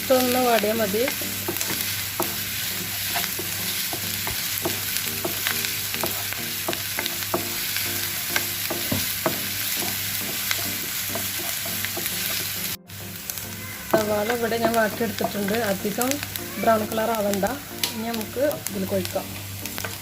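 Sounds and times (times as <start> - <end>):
onion sizzling in a frying pan: 0.0 - 20.0
spoon scraping and tapping pan: 0.6 - 12.6, 13.9 - 17.3.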